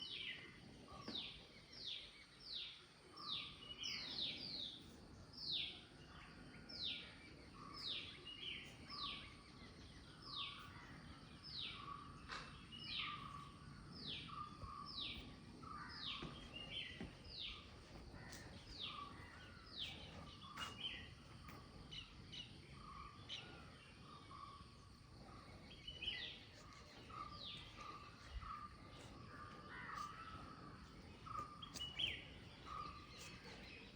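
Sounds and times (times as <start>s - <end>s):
outdoor background noise: 0.0s - 33.9s
bird calling: 11.8s - 33.9s.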